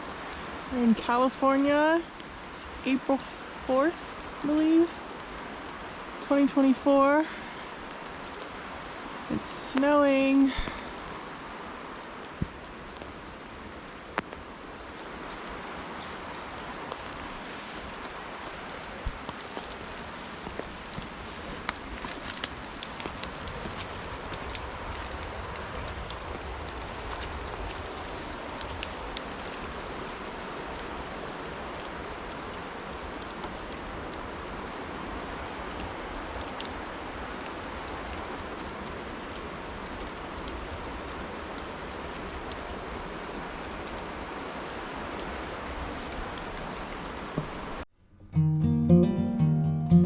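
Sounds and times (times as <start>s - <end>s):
flakes and drips ticking: 7.8s - 34.7s
wet snow pattering: 7.9s - 34.4s.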